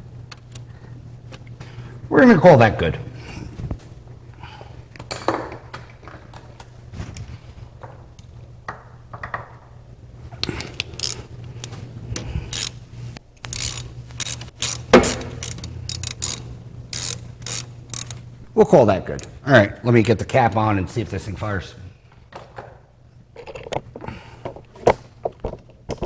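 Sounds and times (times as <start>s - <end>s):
steady low hum: 10.3s - 18.6s
ratchet wrench clicking: 10.4s - 11.8s, 12.5s - 18.2s.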